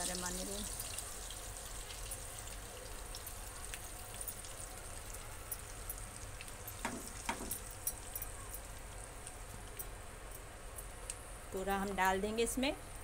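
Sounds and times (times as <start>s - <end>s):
paste sizzling in a pan: 0.0s - 4.6s.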